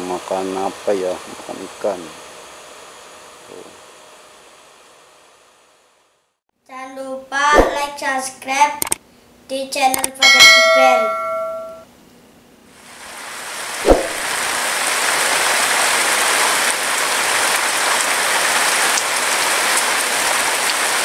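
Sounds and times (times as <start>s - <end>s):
ringing chime: 10.2s - 11.8s
heavy rain falling: 12.8s - 21.0s.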